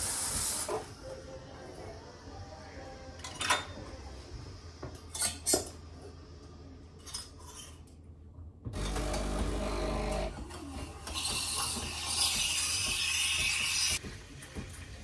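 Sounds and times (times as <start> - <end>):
cutlery and dishes clinking: 3.2 - 4.0, 5.0 - 5.8.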